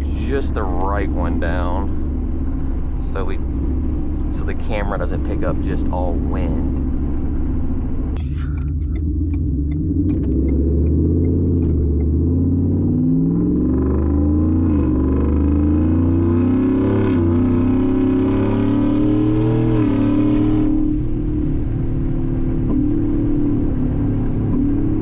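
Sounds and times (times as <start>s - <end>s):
truck engine accelerating: 0.0s - 25.0s.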